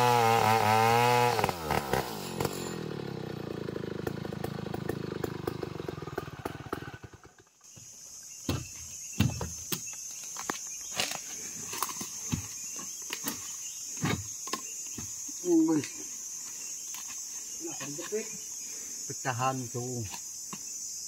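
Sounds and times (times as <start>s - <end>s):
sawmill engine running down: 0.0s - 7.4s.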